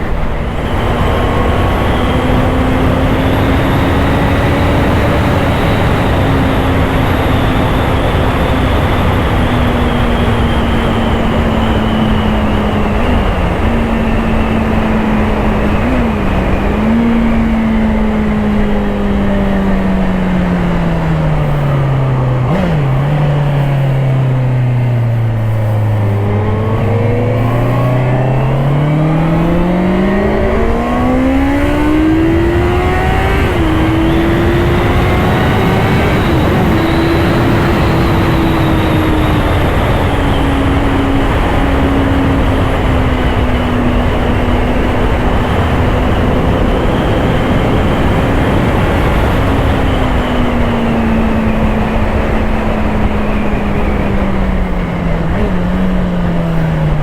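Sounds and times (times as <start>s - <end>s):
motorcycle engine running: 0.0s - 57.0s
wind rush: 0.0s - 57.0s.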